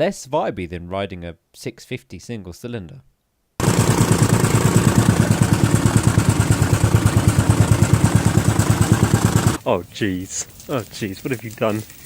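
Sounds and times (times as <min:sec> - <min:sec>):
tamping rammer engine pounding: 0:03.6 - 0:09.6.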